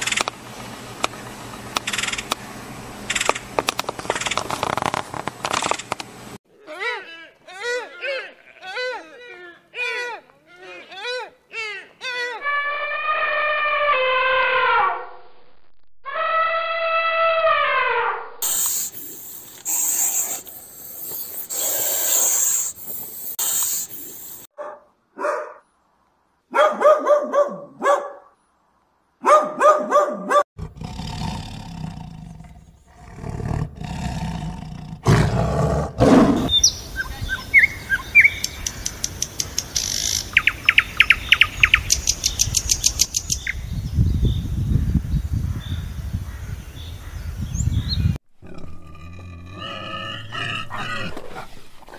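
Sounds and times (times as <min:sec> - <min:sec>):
repeated pitched animal calls: 0:12.4 - 0:15.1
low noisy animal call: 0:12.4 - 0:15.2, 0:16.1 - 0:18.6
rapid high chirps: 0:18.4 - 0:24.5, 0:36.5 - 0:43.6.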